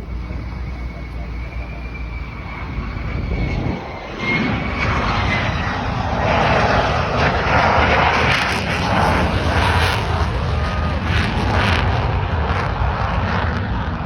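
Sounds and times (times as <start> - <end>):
faint high whine: 0.0 - 7.6
jet engine noise: 0.0 - 14.0.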